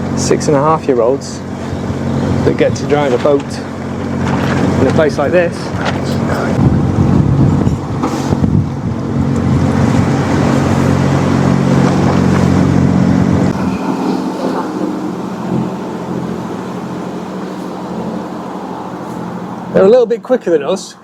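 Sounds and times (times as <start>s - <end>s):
wind on microphone: 5.7s - 19.8s
boat engine humming: 9.0s - 20.0s.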